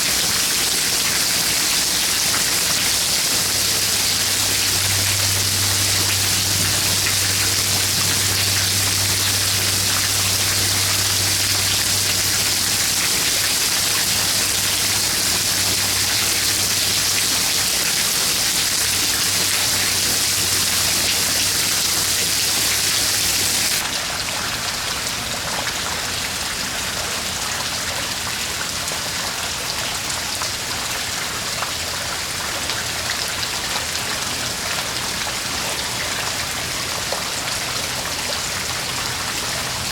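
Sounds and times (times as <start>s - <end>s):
heavy rain pattering: 0.0s - 39.9s
low steady hum: 2.4s - 23.8s.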